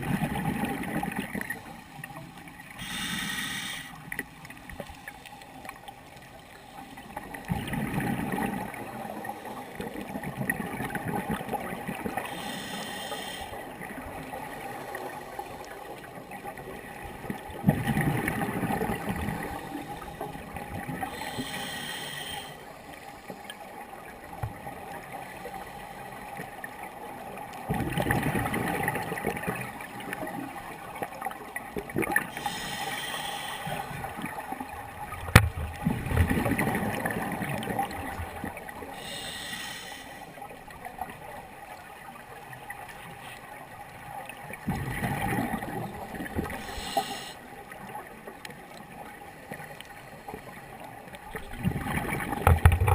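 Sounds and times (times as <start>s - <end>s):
diver breathing through regulator: 2.8s - 4.1s, 12.2s - 13.6s, 21.0s - 23.4s, 32.3s - 34.2s, 38.9s - 40.4s, 46.4s - 47.5s.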